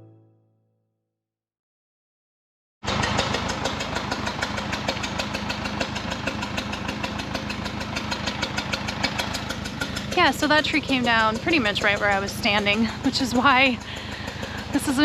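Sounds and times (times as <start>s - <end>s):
dozer engine knocking: 2.8s - 15.0s.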